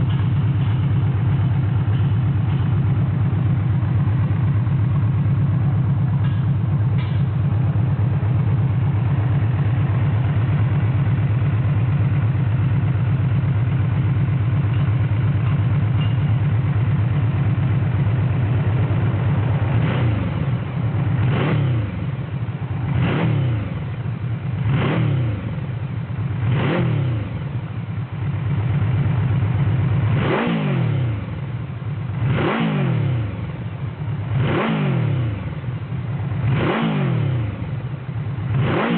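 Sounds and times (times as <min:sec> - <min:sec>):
motorcycle engine idling: 0:00.0 - 0:38.9
engine throttle revs: 0:19.0 - 0:22.1, 0:22.8 - 0:23.9, 0:24.6 - 0:25.6, 0:26.4 - 0:27.4, 0:30.0 - 0:31.2, 0:32.1 - 0:33.5, 0:34.3 - 0:35.6, 0:36.4 - 0:37.8, 0:38.5 - 0:38.9.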